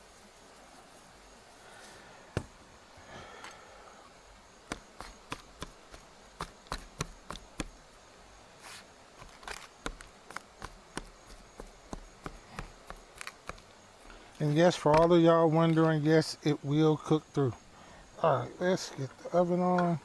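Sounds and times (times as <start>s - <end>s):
utensil tapping meat on board: 4.7s - 7.8s, 9.2s - 15.1s.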